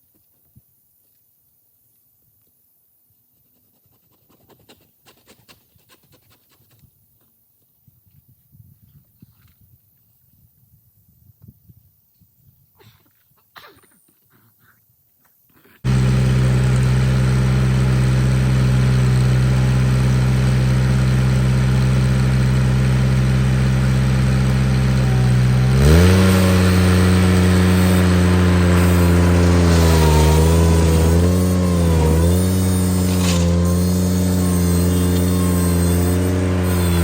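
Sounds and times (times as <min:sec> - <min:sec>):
tractor engine running and revving: 0:15.9 - 0:37.0.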